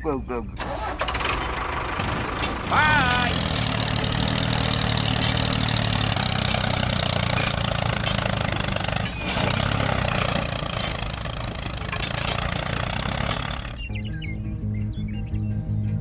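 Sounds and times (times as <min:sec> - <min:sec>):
engine running: 0:00.6 - 0:14.1.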